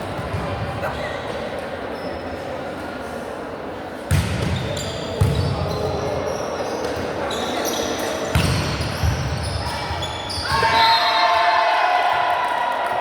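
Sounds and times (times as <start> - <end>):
sneakers squeaking on floor: 1.9 - 2.4, 4.1 - 11.0.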